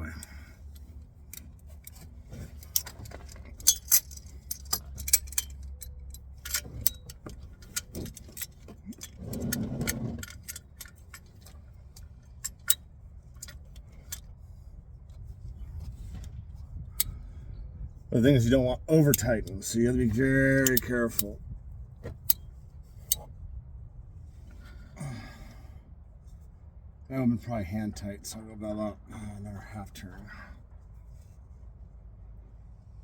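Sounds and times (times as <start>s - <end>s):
metal wrench clicking and clinking: 0.0s - 12.8s, 19.0s - 21.3s.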